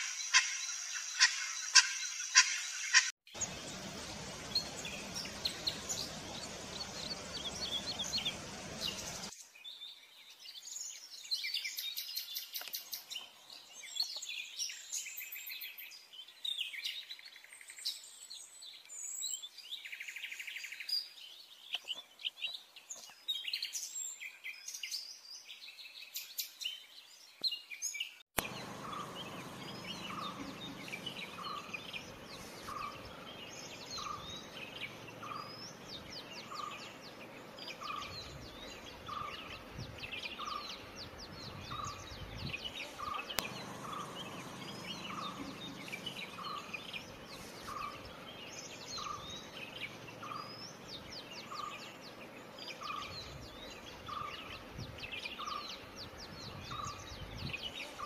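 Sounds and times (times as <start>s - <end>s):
birds chirping and twittering: 0.0s - 58.0s
mid-pitched bird call notes: 28.4s - 36.9s.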